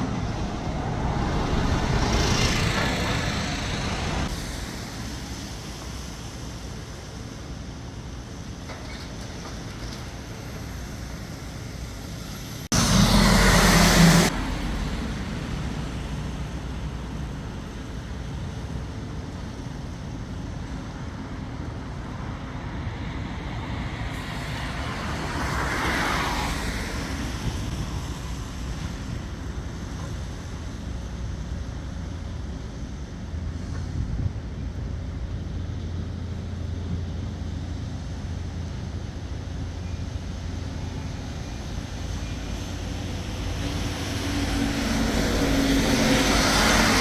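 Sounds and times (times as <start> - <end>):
vehicle passing: 0.0 - 4.3, 12.6 - 17.4, 41.5 - 47.0
sudden loud rush of noise: 0.0 - 7.3, 9.6 - 18.6, 39.6 - 47.0
street traffic noise: 0.0 - 47.0.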